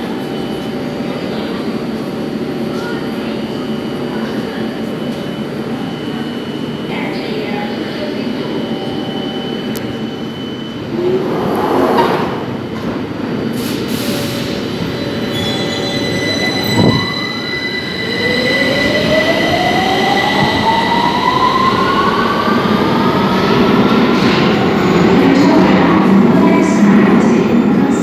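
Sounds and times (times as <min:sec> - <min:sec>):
rail rumble: 0:09.8 - 0:13.9.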